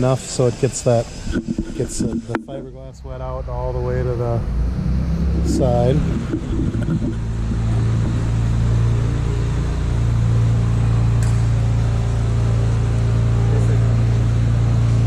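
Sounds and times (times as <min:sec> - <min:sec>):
motor humming: 0:03.6 - 0:15.0.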